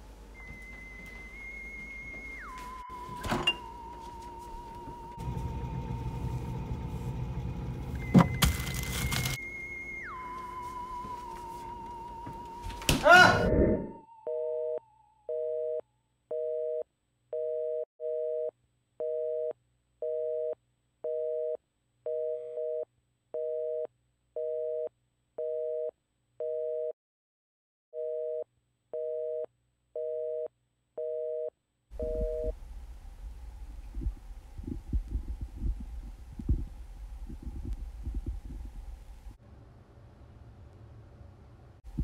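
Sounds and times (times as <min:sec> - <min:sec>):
telephone busy signal: 0:29.0 - 0:32.6
low throbbing rumble: 0:32.0 - 0:39.4.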